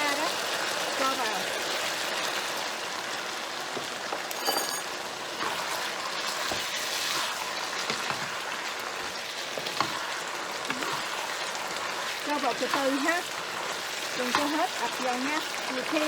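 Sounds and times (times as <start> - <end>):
food sizzling in a frying pan: 0.0 - 16.0
metallic clink: 4.3 - 5.0.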